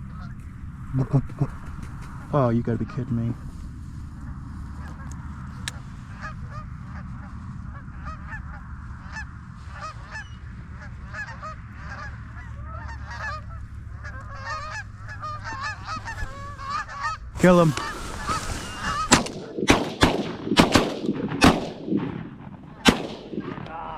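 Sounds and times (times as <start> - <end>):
low rumble: 0.0 - 23.9
geese honking: 6.1 - 19.7.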